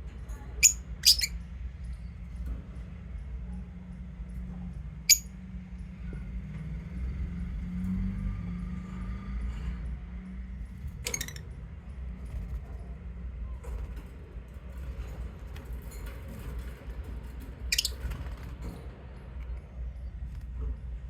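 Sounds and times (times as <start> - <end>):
lovebirds chirping shrilly: 0.6 - 1.3, 17.7 - 17.9
faint small chirps and ticks: 17.6 - 18.1.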